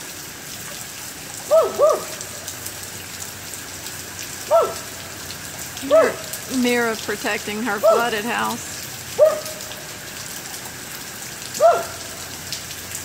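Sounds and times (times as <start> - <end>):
steady rain falling: 0.0 - 13.0
dog barking: 1.5 - 2.2, 4.5 - 4.9, 7.8 - 8.0, 9.2 - 9.6, 11.6 - 12.1.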